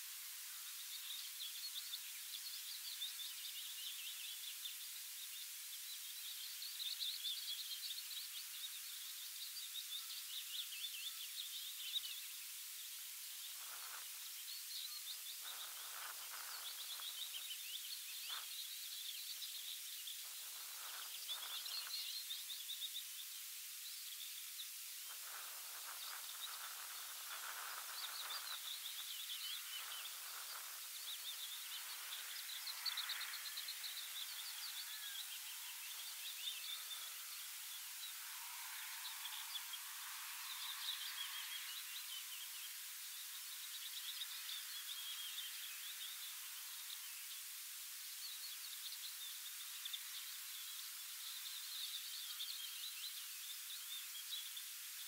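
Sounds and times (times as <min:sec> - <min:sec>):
steady high hiss: 0:00.0 - 0:55.0
songbirds trilling: 0:13.4 - 0:23.3, 0:25.1 - 0:47.3.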